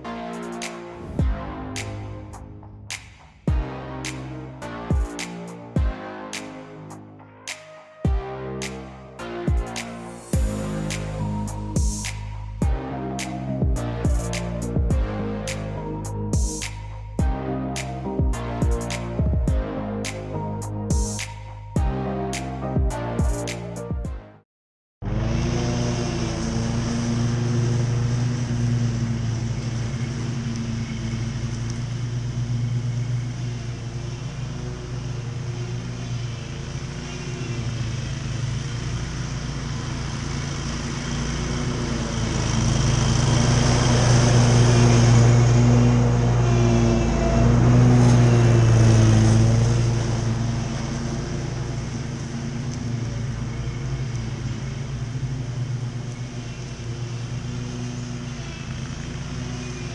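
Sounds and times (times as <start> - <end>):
lawn mower engine under load: 25.0 - 59.9
mower blade cutting grass: 25.0 - 59.9.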